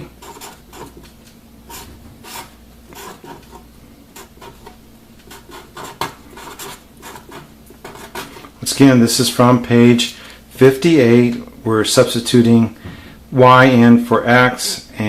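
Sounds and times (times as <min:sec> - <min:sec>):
pen scratching on paper: 0:00.0 - 0:01.0, 0:01.7 - 0:08.3.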